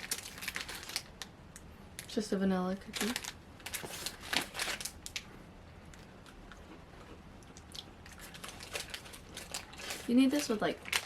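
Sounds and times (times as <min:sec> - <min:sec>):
crackling snack wrapper: 0:00.0 - 0:02.2, 0:02.9 - 0:05.3, 0:07.5 - 0:11.0.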